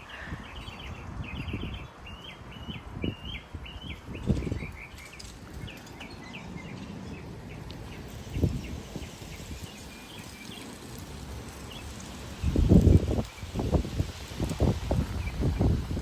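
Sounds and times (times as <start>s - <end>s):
bird chirping: 0.0s - 10.9s
wind buffeting microphone: 0.0s - 16.0s
wind rushing through trees: 0.0s - 16.0s.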